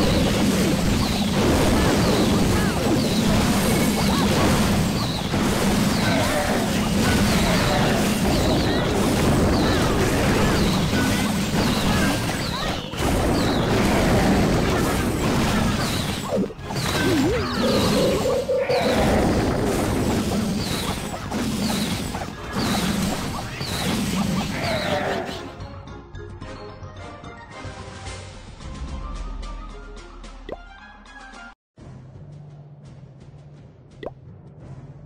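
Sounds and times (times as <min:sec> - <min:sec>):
loud dense music: 0:17.6 - 0:19.3.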